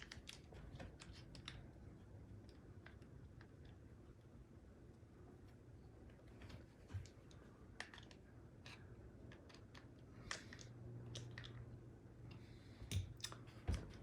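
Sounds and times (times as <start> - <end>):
small clicks and taps: 0.0 - 1.7, 6.4 - 11.7
faint low hum: 0.0 - 14.0.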